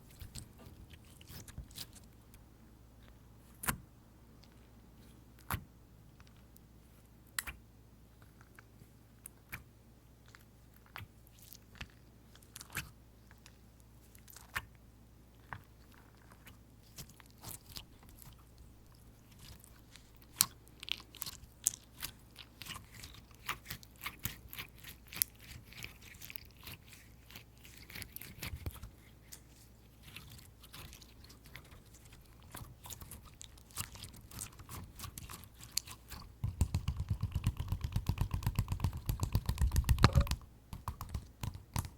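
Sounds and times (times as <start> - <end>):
fingers tapping sticky slime: 34.4 - 41.9.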